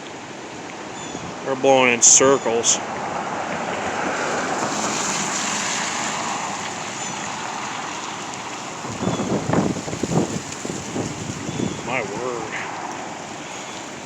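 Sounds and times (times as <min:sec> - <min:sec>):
wind buffeting microphone: 0:00.0 - 0:01.5, 0:02.8 - 0:14.0
wind rushing through trees: 0:00.0 - 0:14.0
dry leaves blowing: 0:04.0 - 0:14.0.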